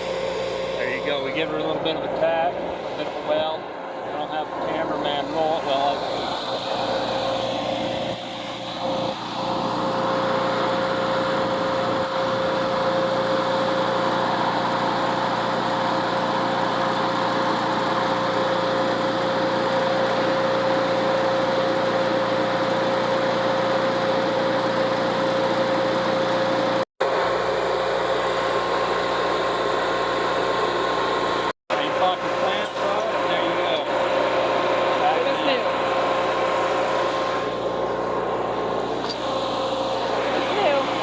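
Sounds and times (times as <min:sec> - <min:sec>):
constant hum: 0:00.0 - 0:20.3, 0:31.7 - 0:41.0.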